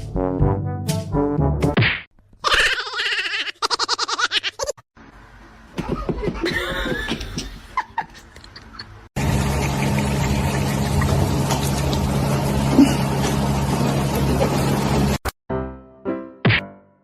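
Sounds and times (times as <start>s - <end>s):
person laughing: 2.4s - 4.8s, 5.8s - 11.4s, 12.7s - 13.3s, 14.1s - 14.8s.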